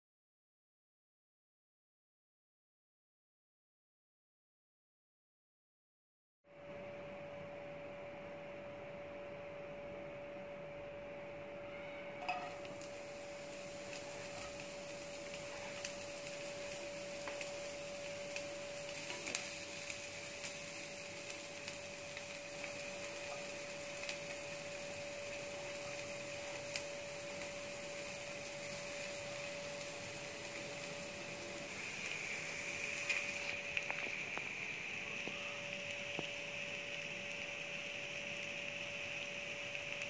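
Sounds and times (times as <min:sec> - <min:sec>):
steady hum: 0:06.5 - 0:40.0
onion sizzling in oil: 0:12.2 - 0:40.0.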